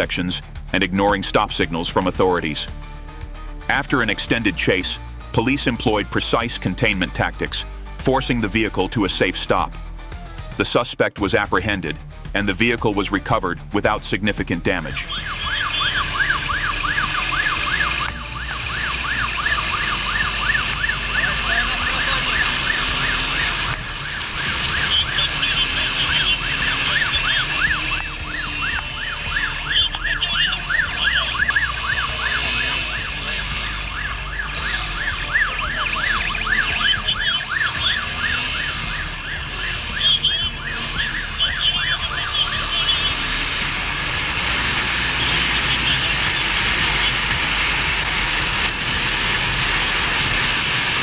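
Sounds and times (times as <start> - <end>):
vehicle rumble on road: 14.7 - 51.0
police siren yelp: 14.8 - 51.0
high chirping siren tone: 14.9 - 50.7.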